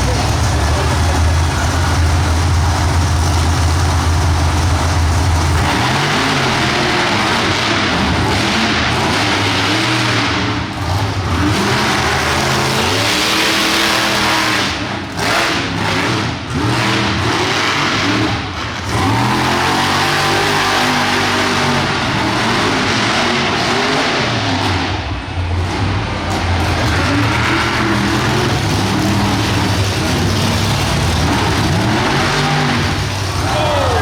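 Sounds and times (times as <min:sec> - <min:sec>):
monster truck engine revving: 0:00.0 - 0:34.0.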